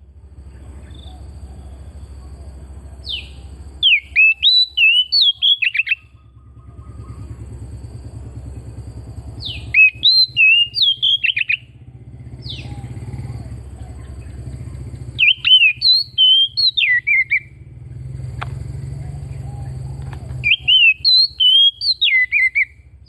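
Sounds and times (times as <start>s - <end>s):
bird singing sharp whistles: 3.0s - 7.2s, 9.4s - 11.7s, 12.4s - 12.9s, 15.1s - 17.6s, 20.2s - 22.8s
low rumble: 6.0s - 16.2s, 17.4s - 20.8s.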